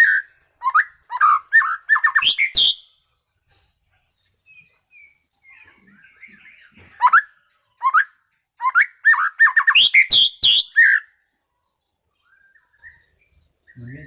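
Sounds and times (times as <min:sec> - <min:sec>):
bird twittering warble: 0:00.0 - 0:02.9, 0:04.0 - 0:14.0
bird whistling rising notes: 0:00.0 - 0:02.9, 0:04.9 - 0:11.2.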